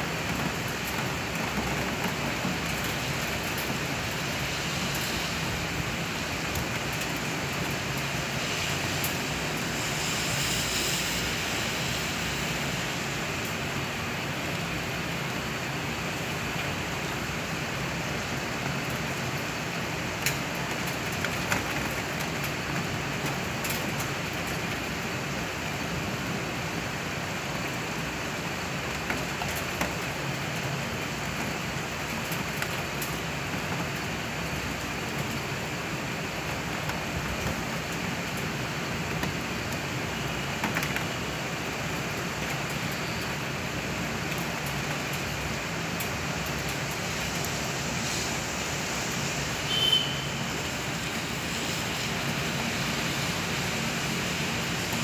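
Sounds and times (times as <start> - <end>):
raindrop ticking nearby: 0.0 - 10.7, 16.3 - 26.9, 27.5 - 47.9
heavy rain on pavement: 0.0 - 55.0.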